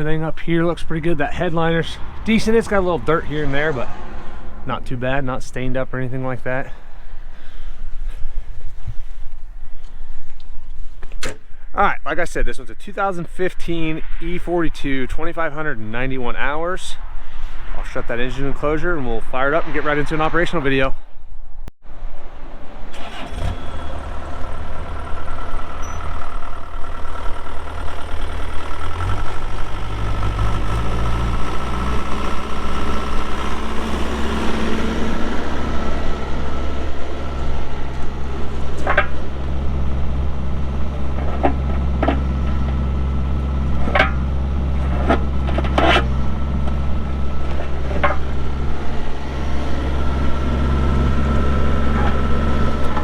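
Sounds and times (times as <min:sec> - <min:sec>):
excavator diesel engine running: 0:00.0 - 0:07.5, 0:22.9 - 0:53.0.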